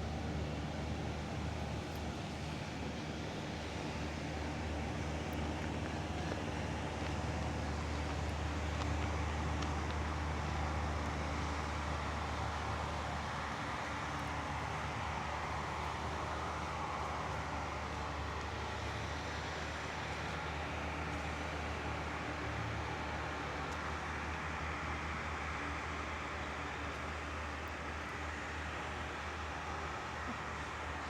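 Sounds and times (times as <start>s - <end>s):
road traffic rumble: 0.0s - 31.0s.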